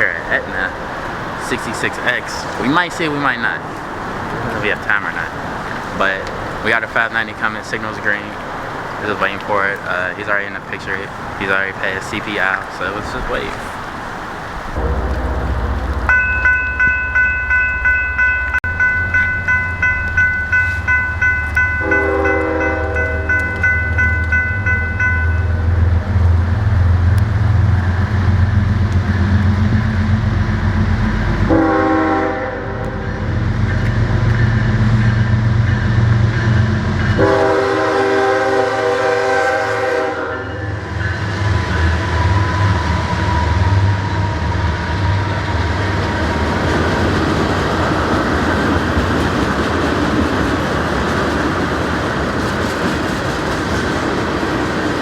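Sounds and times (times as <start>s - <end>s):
diesel locomotive engine rumble: 0.0s - 55.0s
train wheels on rails: 0.0s - 55.0s
train air horn: 14.8s - 16.1s, 21.8s - 23.3s, 31.5s - 33.2s, 37.2s - 40.8s.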